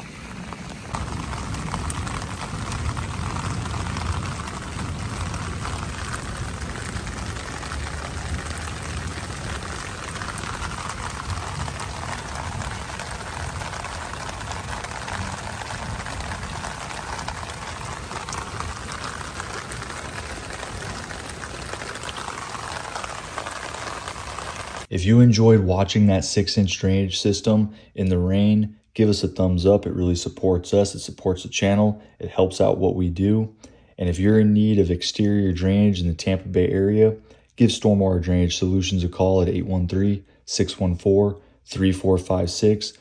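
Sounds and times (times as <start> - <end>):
runoff water bubbling in drain: 0.0 - 24.9
steady rain falling: 0.0 - 24.9.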